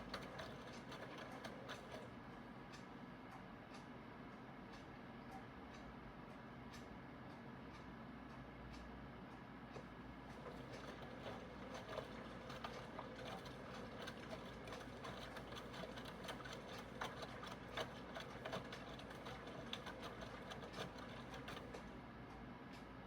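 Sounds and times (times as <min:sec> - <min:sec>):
washing machine motor humming: 0:00.0 - 0:02.6, 0:10.1 - 0:22.1.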